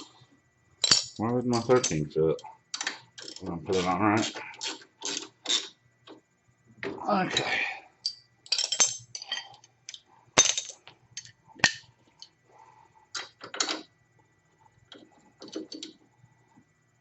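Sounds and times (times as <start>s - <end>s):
metal tools clinking on metal: 0.8s - 5.7s, 7.3s - 9.6s.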